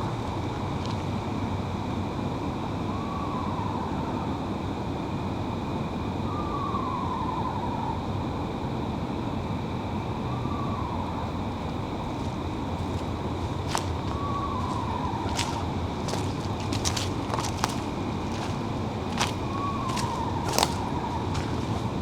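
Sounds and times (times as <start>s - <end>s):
steady background hum: 0.0s - 22.0s
owl whinny calls: 14.0s - 15.8s.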